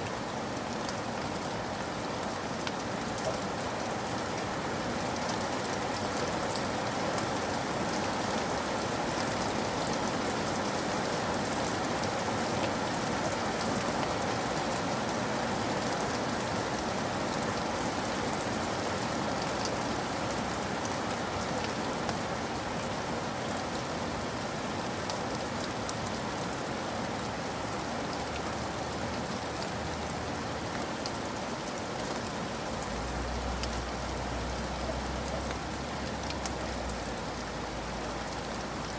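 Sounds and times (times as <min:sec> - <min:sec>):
raindrops ticking: 0:28.3 - 0:38.9.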